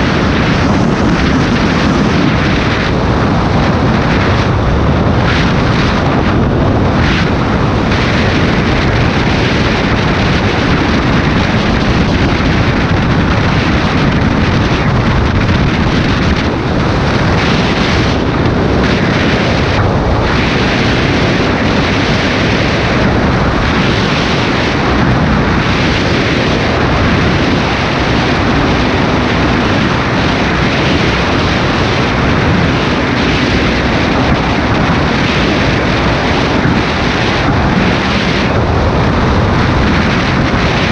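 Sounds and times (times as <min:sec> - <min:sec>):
wind on microphone: 0:00.0 - 0:40.9.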